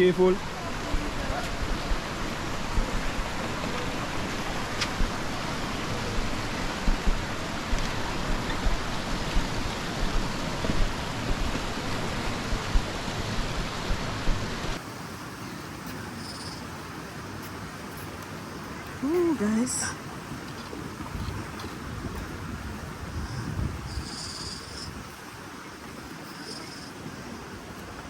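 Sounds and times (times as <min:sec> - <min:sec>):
waterfall rushing: 0:00.0 - 0:28.0
wind thumping on microphone: 0:06.1 - 0:14.8, 0:20.2 - 0:26.2.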